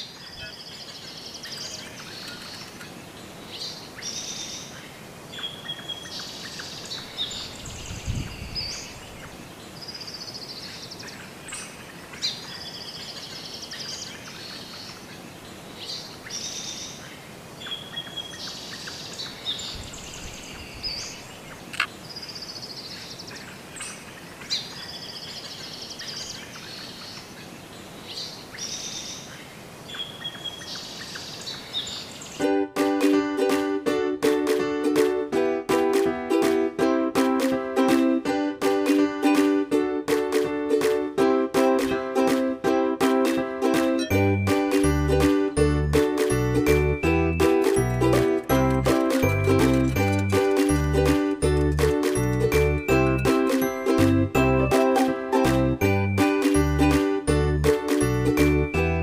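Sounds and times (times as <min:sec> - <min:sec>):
birds chirping and warbling: 0:00.0 - 0:32.5.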